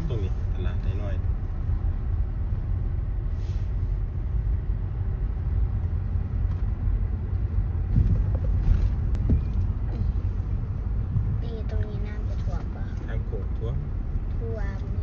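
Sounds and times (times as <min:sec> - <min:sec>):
moving vehicle rumble: 0:00.0 - 0:15.0
road noise: 0:00.0 - 0:15.0
wind on microphone: 0:07.7 - 0:11.7.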